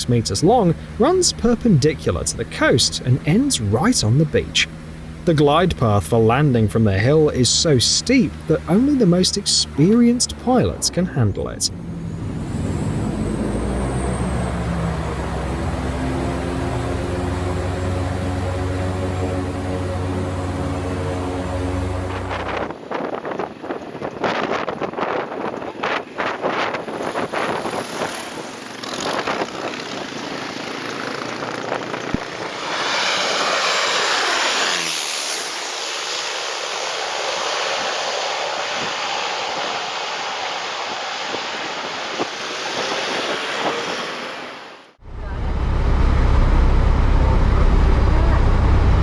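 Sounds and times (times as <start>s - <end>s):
loud steady low rumble: 0.0s - 22.8s, 45.0s - 49.0s
aircraft engine passing overhead: 0.0s - 49.0s.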